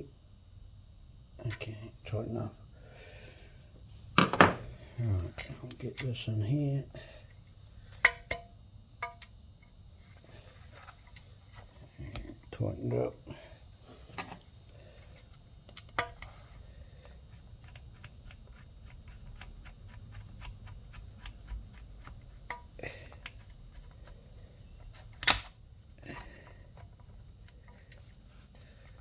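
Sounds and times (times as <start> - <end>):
hand tool clicks: 25.2 - 25.5.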